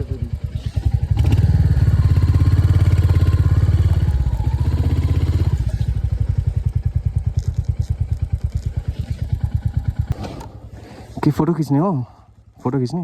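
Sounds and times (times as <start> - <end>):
motorcycle engine thumping: 5.2 - 11.3.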